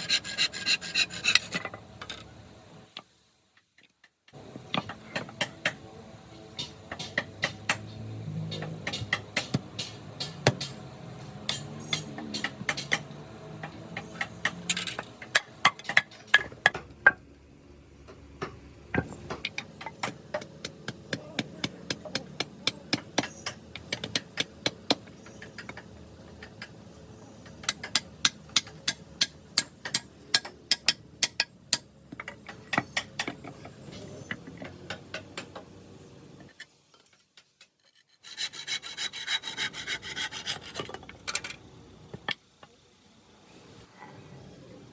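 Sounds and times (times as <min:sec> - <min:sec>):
scraping wood: 0:00.0 - 0:01.8
hand tools striking wood: 0:06.6 - 0:07.9, 0:08.5 - 0:10.8, 0:11.4 - 0:16.8, 0:19.0 - 0:26.8, 0:27.4 - 0:35.6.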